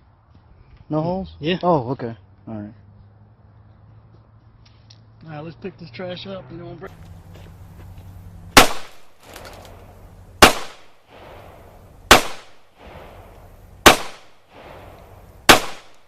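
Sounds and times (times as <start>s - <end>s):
handgun shots with echo: 8.6s - 9.8s, 10.4s - 11.4s, 12.1s - 13.1s, 13.8s - 16.0s.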